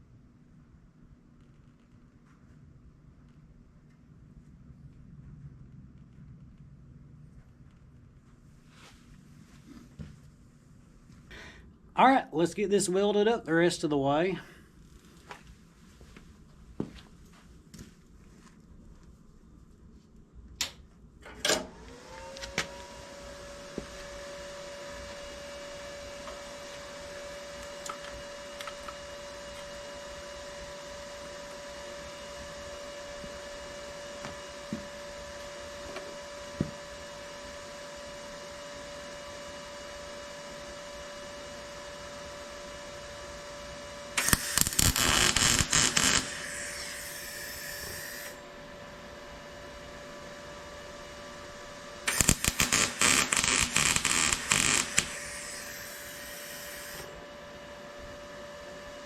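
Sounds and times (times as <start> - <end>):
welder humming: 21.4 - 59.0
welding arc crackling: 25.0 - 35.6, 44.2 - 48.4, 52.0 - 57.2.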